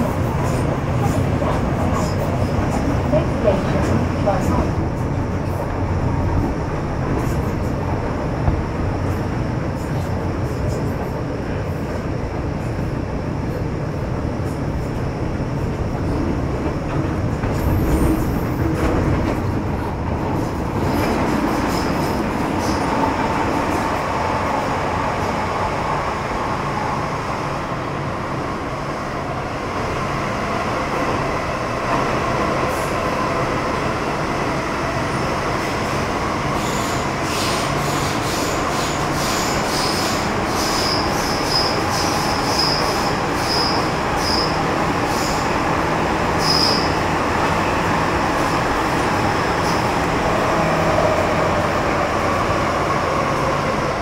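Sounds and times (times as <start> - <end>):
train rolling noise: 0.0 - 54.0
high-pitched wheel squeals: 38.4 - 45.4, 46.4 - 47.0.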